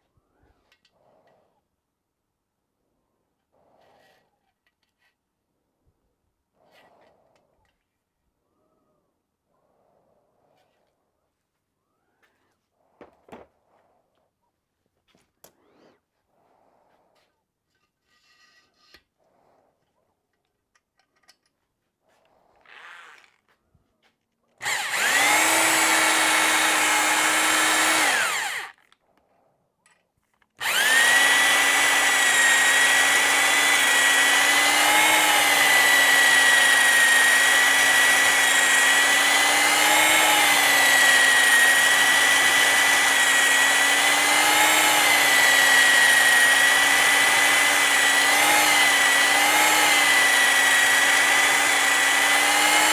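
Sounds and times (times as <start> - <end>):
electric drill whining: 24.6 - 28.8, 30.6 - 52.9.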